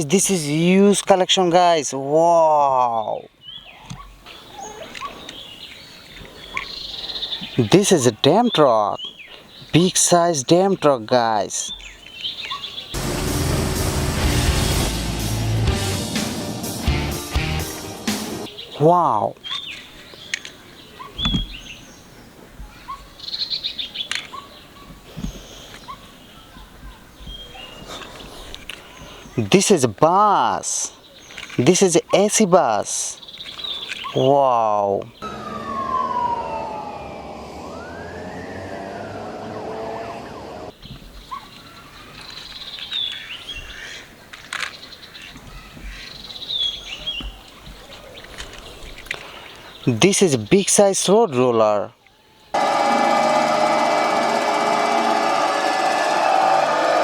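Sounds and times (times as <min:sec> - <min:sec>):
small birds chirping: 0:00.0 - 0:13.0, 0:18.4 - 0:35.3, 0:40.0 - 0:52.6
dull thump: 0:21.2 - 0:21.6
siren wailing: 0:35.2 - 0:40.7, 0:52.6 - 0:57.0.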